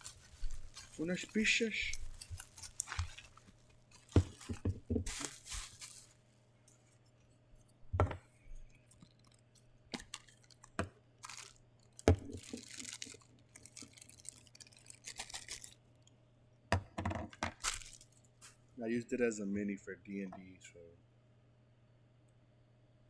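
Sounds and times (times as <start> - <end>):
plastic packaging rustling: 0.0 - 7.0, 8.8 - 16.0, 17.3 - 18.6.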